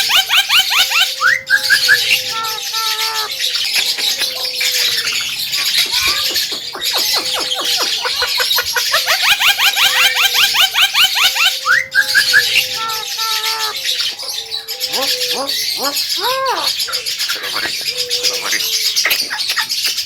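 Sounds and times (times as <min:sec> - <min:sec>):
bird whistled notes: 0:00.0 - 0:15.8
bird chattering song: 0:00.0 - 0:20.0.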